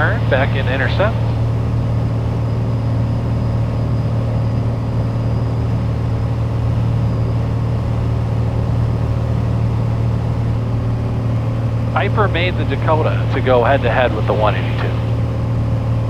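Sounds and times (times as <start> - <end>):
faint high whine: 0.0 - 1.6, 11.4 - 15.5
aircraft engine droning: 0.0 - 16.0.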